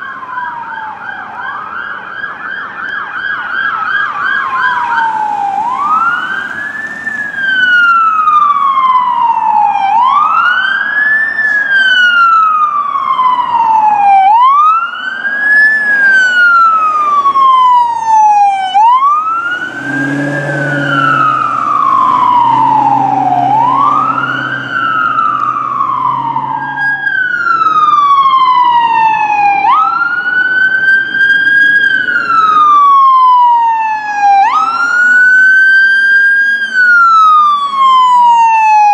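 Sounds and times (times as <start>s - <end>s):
emergency siren wailing: 0.0s - 38.9s
low horn: 19.6s - 24.3s.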